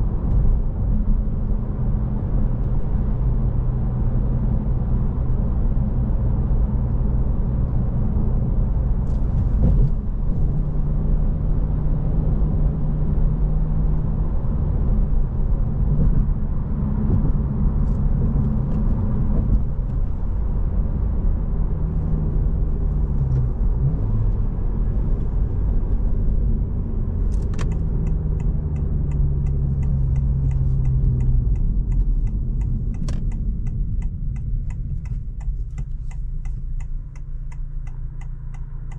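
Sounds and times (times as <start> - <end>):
road rumble: 0.0 - 38.9
car engine humming: 14.2 - 38.9
turn signal ticking: 22.7 - 38.9.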